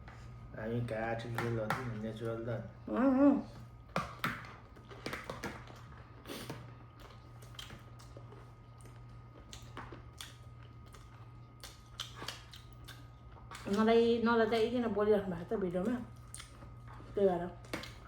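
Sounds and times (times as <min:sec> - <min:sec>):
low electrical hum: 0:00.0 - 0:18.0
food crunching while chewed: 0:03.7 - 0:13.8, 0:16.1 - 0:18.0.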